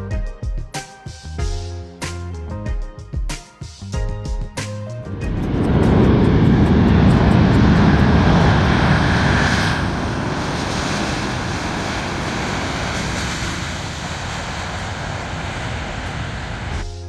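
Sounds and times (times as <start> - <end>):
jet engine rush: 4.6 - 17.0.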